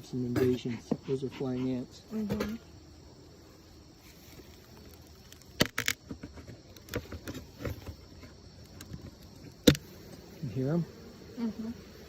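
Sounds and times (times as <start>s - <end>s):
honeybee colony humming: 0.0s - 12.0s
sharp clicks and light knocks: 5.0s - 9.8s.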